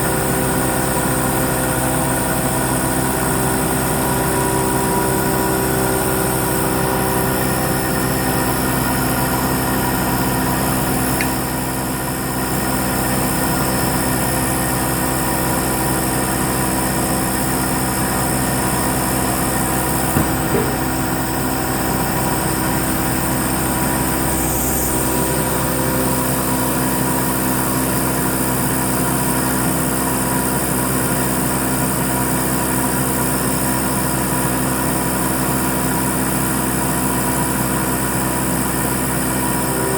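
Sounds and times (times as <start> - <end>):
milling machine humming: 19.9 - 26.8.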